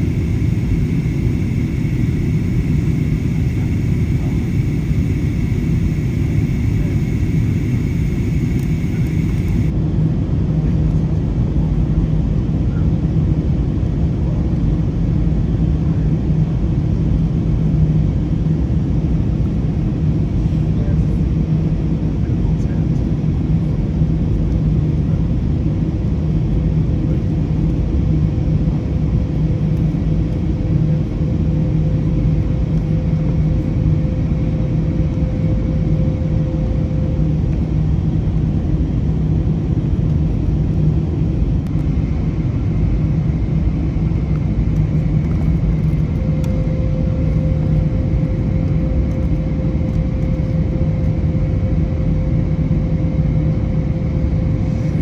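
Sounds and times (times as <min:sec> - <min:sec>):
faint hum: 0:00.0 - 0:09.7
airplane cabin drone: 0:00.0 - 0:55.0.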